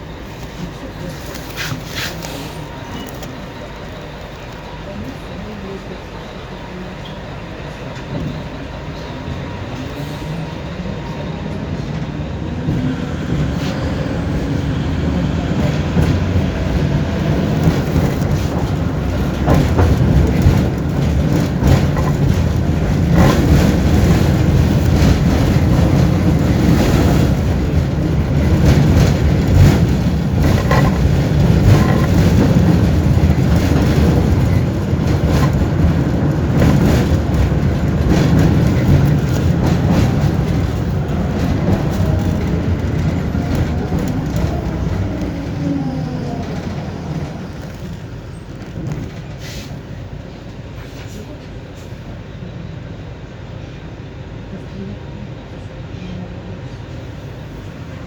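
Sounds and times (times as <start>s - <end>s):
tram rumbling on rails: 0.0s - 58.0s
wheels clicking over track: 12.6s - 49.5s.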